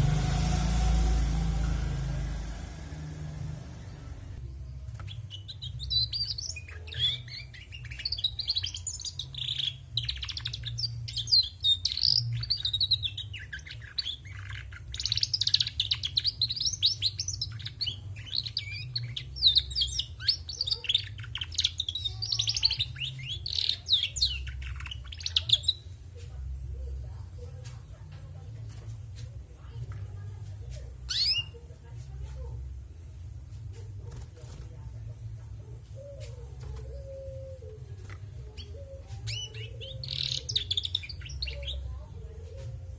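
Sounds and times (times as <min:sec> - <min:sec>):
steady low rumble: 0:00.0 - 0:04.9
canary chirps and trills: 0:00.0 - 0:42.9.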